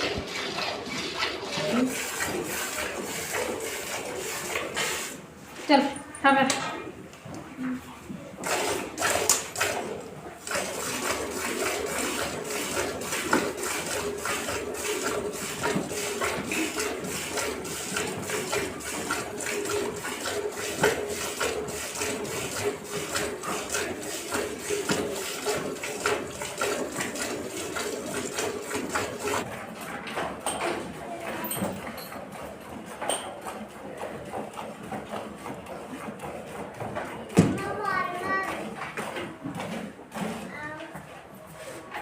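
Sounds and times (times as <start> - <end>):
milk squirting into metal pail: 0.0 - 5.2, 8.4 - 29.4.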